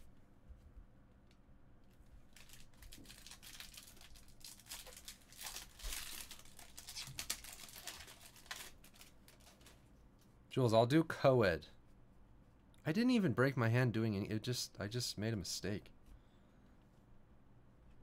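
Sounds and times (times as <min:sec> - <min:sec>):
foil wrapper crinkling and tearing: 0:02.3 - 0:09.8.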